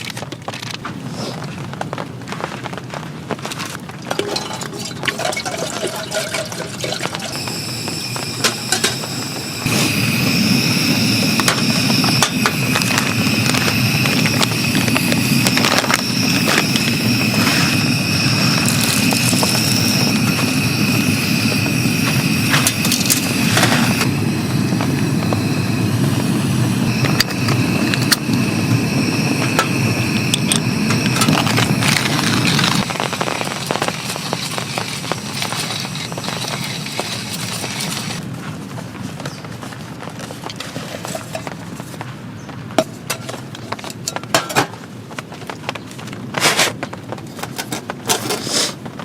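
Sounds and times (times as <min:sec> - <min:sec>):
rain falling: 0:30.5 - 0:38.2.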